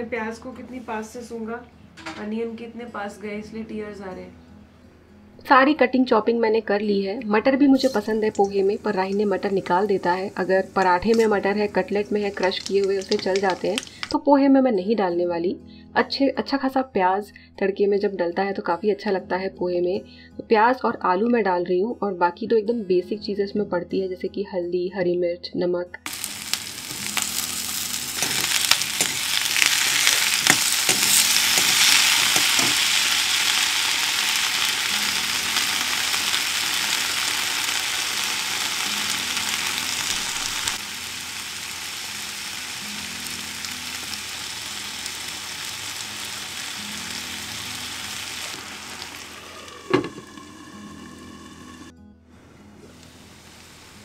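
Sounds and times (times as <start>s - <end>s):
onions and potatoes sizzling in oil: 7.6s - 14.2s, 26.1s - 51.9s
spatula stirring: 27.8s - 33.1s.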